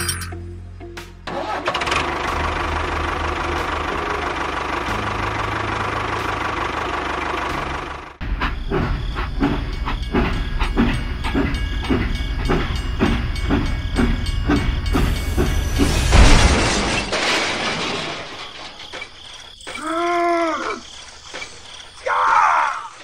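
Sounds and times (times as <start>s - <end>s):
toy train chugging: 1.4s - 16.1s.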